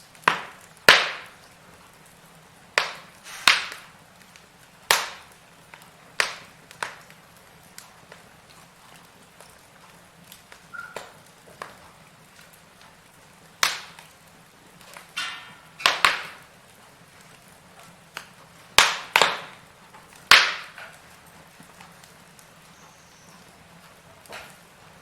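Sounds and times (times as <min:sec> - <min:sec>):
faint steady hiss: 0:00.0 - 0:25.0
firewood crackling: 0:00.0 - 0:25.0
sharp loud pops: 0:00.3 - 0:01.4, 0:02.8 - 0:03.9.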